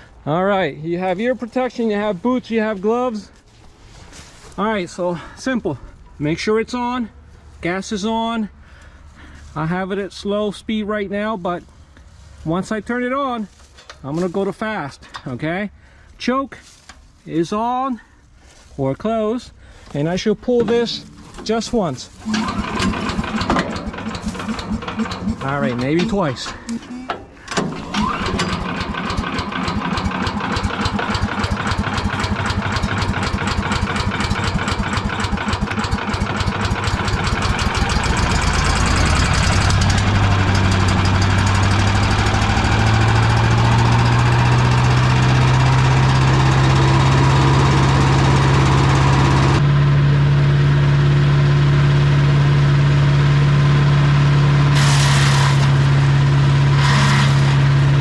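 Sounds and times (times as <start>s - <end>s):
small gas engine running: 22.1s - 26.8s, 27.5s - 58.0s.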